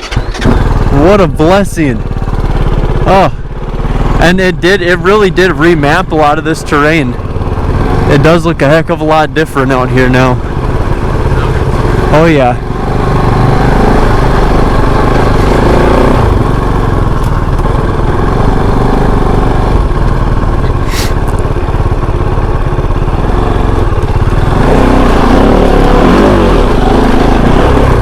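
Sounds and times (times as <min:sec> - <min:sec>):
motorcycle engine running: 0:00.0 - 0:28.0
short hiss: 0:20.8 - 0:21.2.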